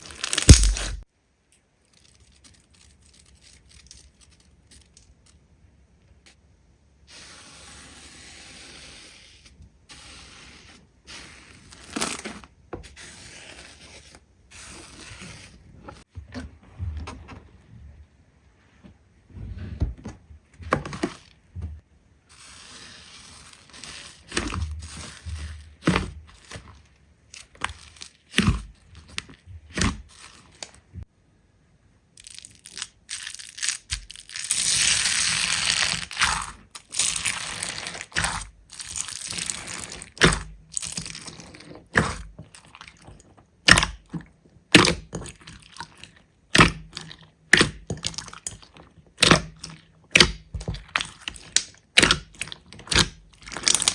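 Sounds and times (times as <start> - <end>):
slime crackling and popping: 0.0 - 1.0, 32.2 - 44.1, 44.7 - 53.9.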